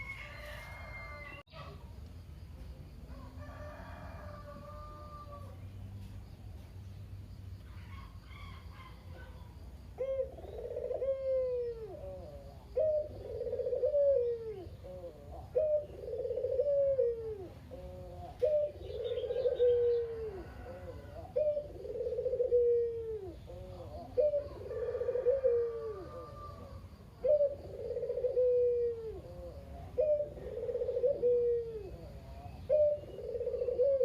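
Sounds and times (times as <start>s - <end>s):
dove cooing: 7.8s - 34.0s.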